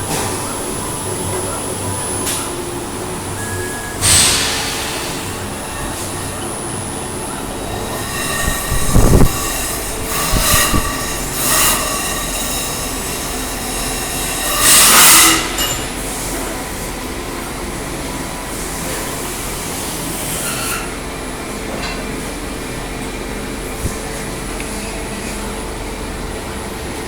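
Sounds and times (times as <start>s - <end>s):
stepper motors whining: 0.0s - 14.4s
steady mechanical hum: 0.0s - 27.0s.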